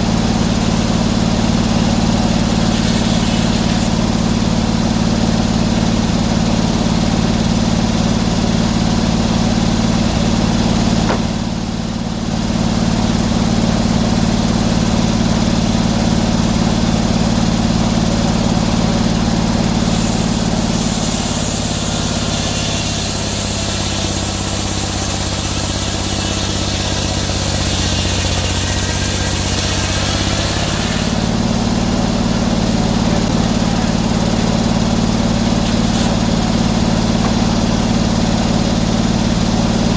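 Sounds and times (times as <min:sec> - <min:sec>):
saw blade rasping through log: 0:00.0 - 0:04.4, 0:19.6 - 0:32.4, 0:33.0 - 0:38.5
sawmill engine running: 0:00.0 - 0:39.9.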